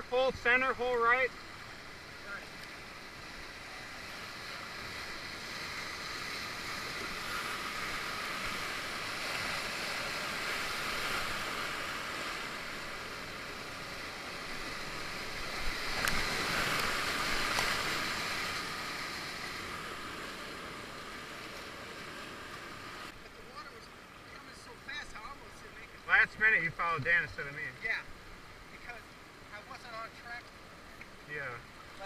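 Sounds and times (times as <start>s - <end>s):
whitewater rapids rushing: 0.0s - 23.1s.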